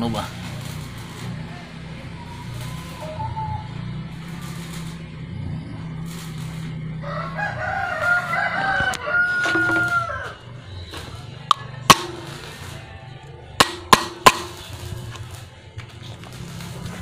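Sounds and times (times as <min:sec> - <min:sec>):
rooster crowing: 0:06.9 - 0:10.5.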